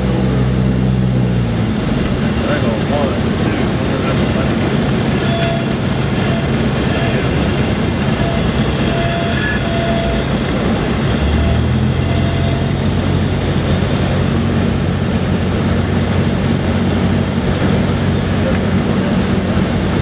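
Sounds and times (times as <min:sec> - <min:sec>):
deep rumble: 0:00.0 - 0:20.0
light aircraft engine droning: 0:00.0 - 0:20.0.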